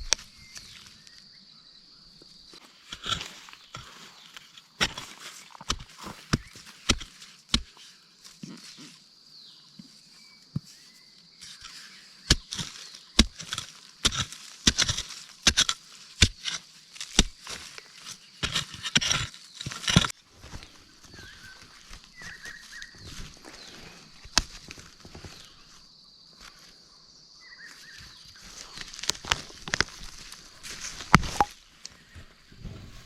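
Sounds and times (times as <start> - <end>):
faint bird chirps: 0.0 - 2.6, 8.4 - 13.9, 20.5 - 29.0.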